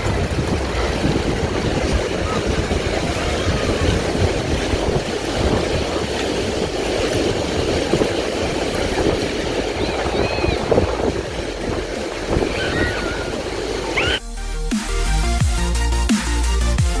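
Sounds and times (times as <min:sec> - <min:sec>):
ocean surf washing ashore: 0:00.0 - 0:14.2
wind rumbling on microphone: 0:00.0 - 0:14.2
faint high calls: 0:12.0 - 0:14.2.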